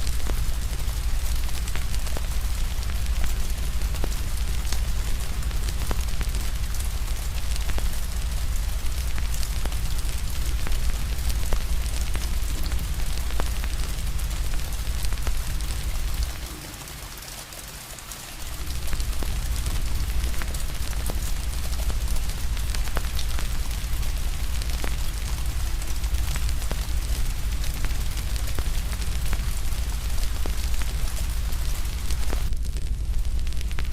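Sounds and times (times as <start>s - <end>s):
steady rain hiss: 0.0s - 33.9s
wood fire crackling: 0.0s - 33.9s
deep low rumble: 18.4s - 33.9s.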